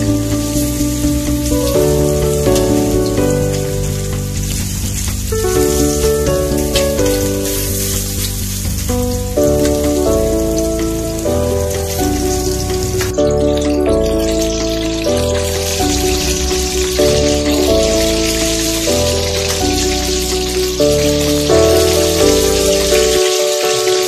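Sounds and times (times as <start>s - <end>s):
background music of held notes: 0.0s - 24.0s
meat sizzling in hot oil: 0.0s - 24.0s.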